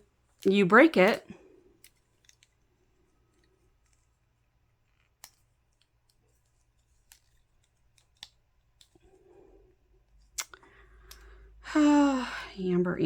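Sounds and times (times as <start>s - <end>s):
plastic clip clicking: 4.9s - 9.0s.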